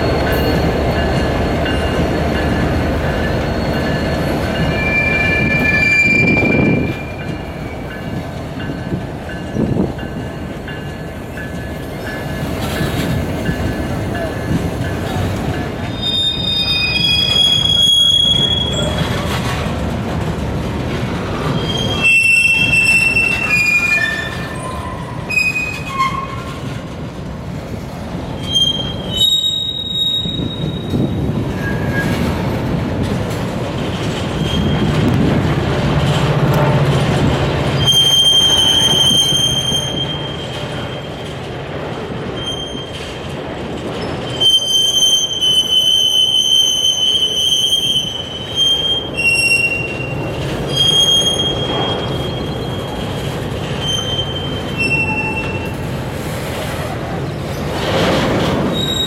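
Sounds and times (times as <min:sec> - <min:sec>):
train wheels squealing: 0:00.0 - 0:10.3, 0:15.1 - 0:19.4, 0:21.4 - 0:26.7, 0:28.3 - 0:32.4, 0:34.3 - 0:35.1, 0:37.7 - 0:41.2, 0:42.3 - 0:43.2, 0:44.0 - 0:58.0, 0:58.7 - 0:59.0
train cars rumbling: 0:00.0 - 0:59.0.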